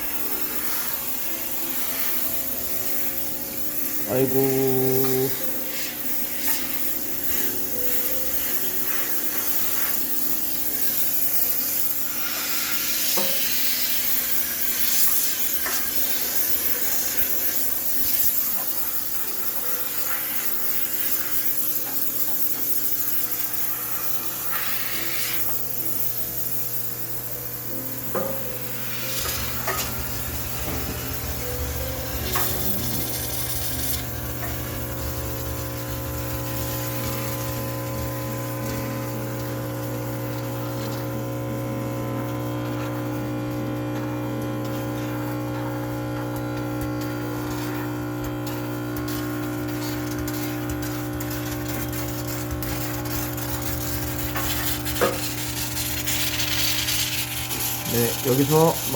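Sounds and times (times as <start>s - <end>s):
steam cleaner hissing: 0.0s - 58.9s
deep hum: 28.0s - 39.3s.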